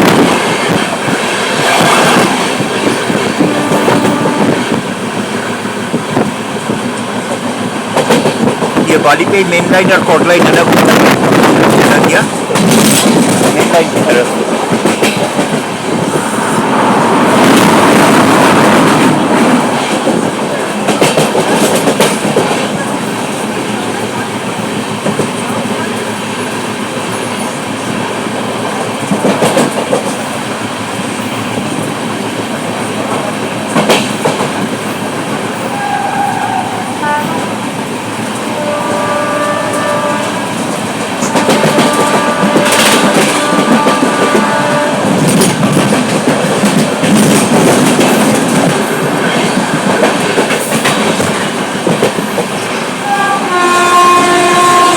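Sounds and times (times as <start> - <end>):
train rumbling on rails: 0.0 - 54.9
train horn blasts: 3.3 - 4.8, 35.7 - 37.6, 38.4 - 40.6, 41.2 - 45.3, 53.0 - 54.9
wheel clatter over track joints: 10.4 - 16.1, 45.0 - 52.9.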